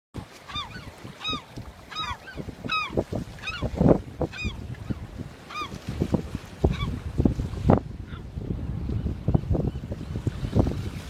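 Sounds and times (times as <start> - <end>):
bird honking calls: 0.5 - 3.7, 4.3 - 5.7.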